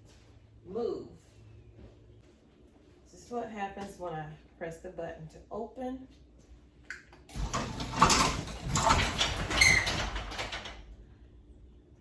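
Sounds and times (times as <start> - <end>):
garage door opener running: 7.3 - 10.9
garage door rattling: 7.3 - 11.0.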